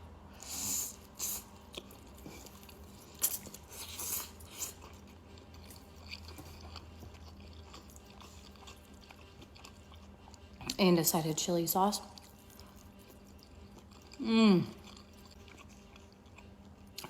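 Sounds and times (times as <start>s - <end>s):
person chewing food: 0.4s - 10.8s, 12.1s - 17.0s.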